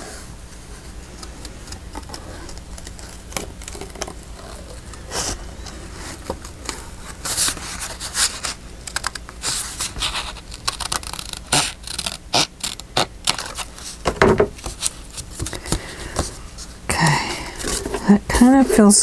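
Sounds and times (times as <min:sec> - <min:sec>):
paper rustling: 0:00.1 - 0:19.0
scissors snipping paper: 0:07.6 - 0:14.0.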